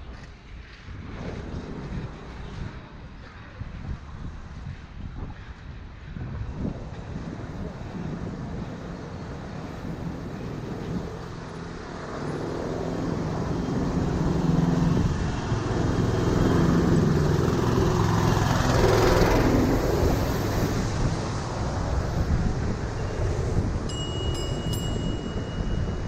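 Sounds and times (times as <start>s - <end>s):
road traffic: 0.0s - 26.0s
vehicle engine passing: 7.5s - 23.8s.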